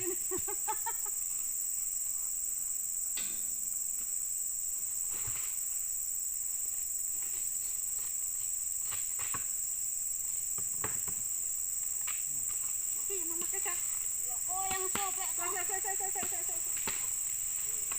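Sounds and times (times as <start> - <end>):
insects buzzing: 0.0 - 17.9.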